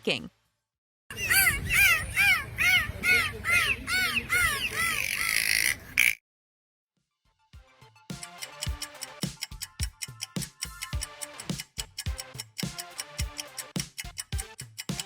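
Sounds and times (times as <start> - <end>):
dolphin buzzing: 1.1 - 6.2
dolphin chirping: 1.1 - 6.2.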